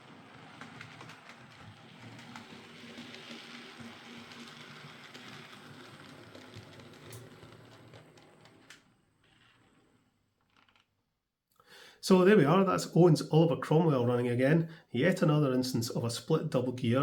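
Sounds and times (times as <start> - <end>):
wheels ticking on track: 0.0 - 8.8
model train motor whirring: 0.0 - 10.0.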